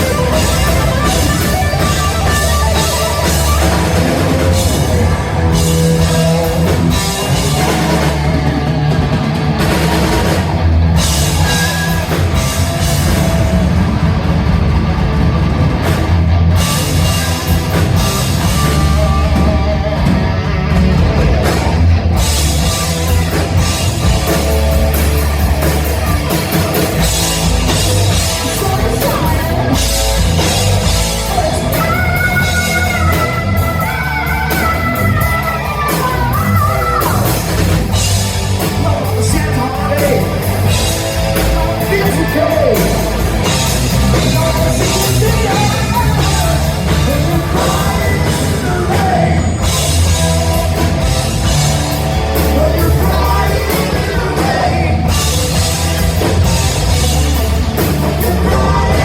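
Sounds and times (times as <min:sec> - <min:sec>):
lead vocalist singing and yelling: 0:00.0 - 0:14.3, 0:22.4 - 0:59.0
hard rock band playing: 0:00.0 - 0:59.0.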